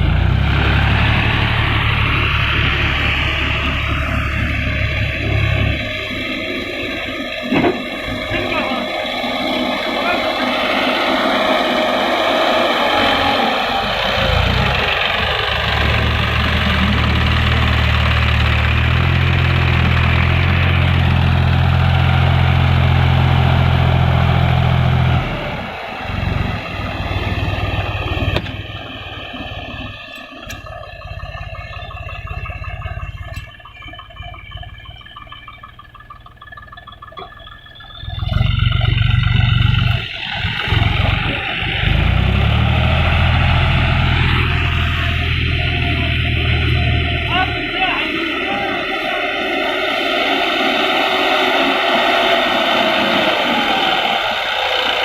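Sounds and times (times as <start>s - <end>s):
tractor diesel engine rumbling: 0.0s - 55.0s.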